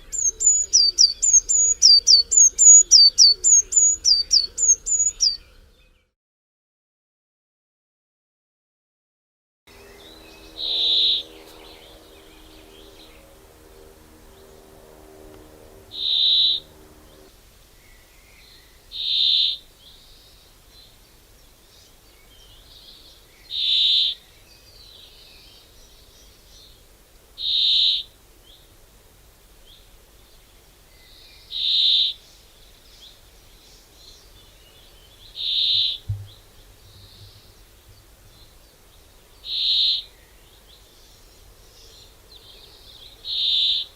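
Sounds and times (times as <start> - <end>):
bird high call: 0.0 - 5.5, 9.8 - 13.3, 15.5 - 17.3
faint bird chirping: 0.0 - 6.2, 9.7 - 28.8, 29.6 - 43.9.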